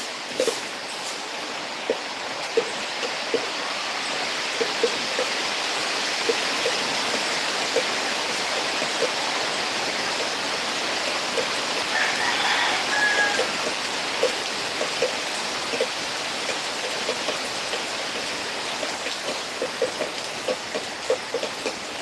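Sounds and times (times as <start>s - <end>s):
heavy rain pouring: 0.0s - 22.0s
close water drips: 1.8s - 22.0s.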